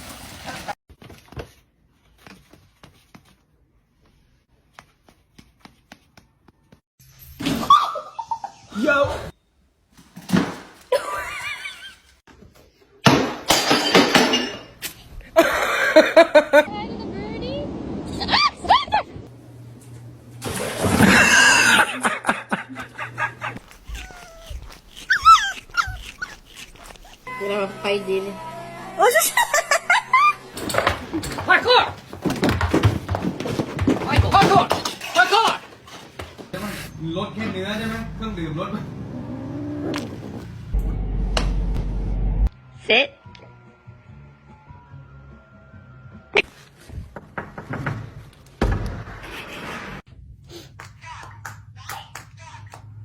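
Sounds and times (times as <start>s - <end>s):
dog whining and yelping: 23.6s - 27.3s.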